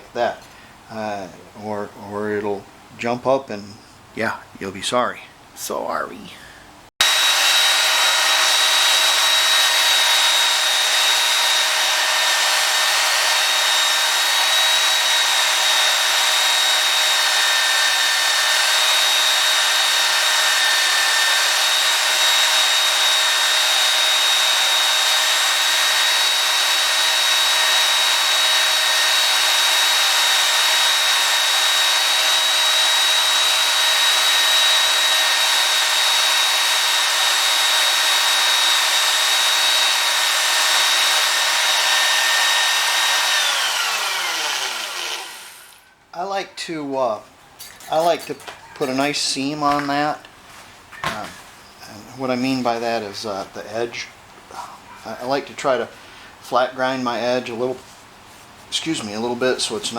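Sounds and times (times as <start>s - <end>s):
belt sander whining: 7.0s - 45.9s.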